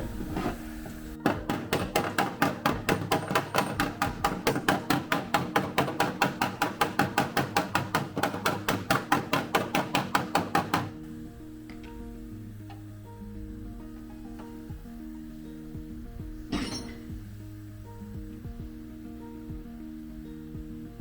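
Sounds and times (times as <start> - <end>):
background music: 0.0 - 21.0
body hammer tapping sheet metal: 1.2 - 11.0, 16.5 - 17.3.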